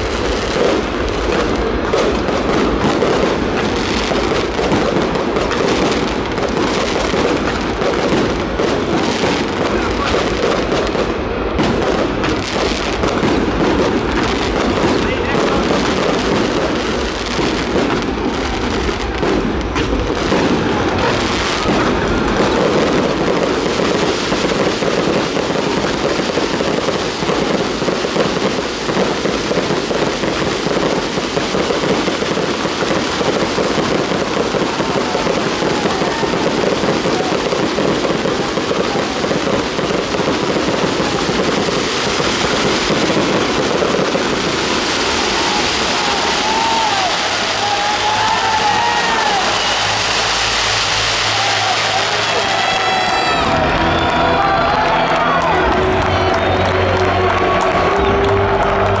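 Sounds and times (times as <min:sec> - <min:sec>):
fireworks crackling: 0:00.0 - 0:59.0.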